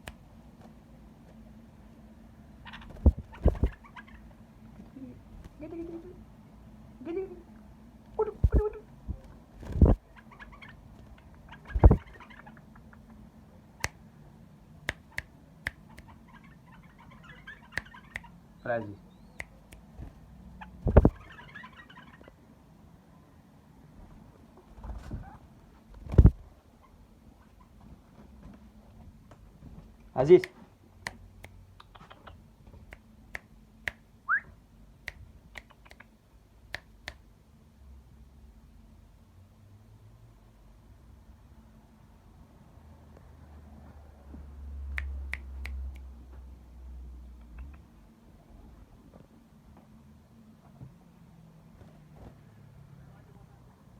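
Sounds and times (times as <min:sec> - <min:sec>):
bird chirping: 0:02.6 - 0:04.4, 0:09.7 - 0:13.2, 0:15.8 - 0:19.6, 0:20.5 - 0:22.4.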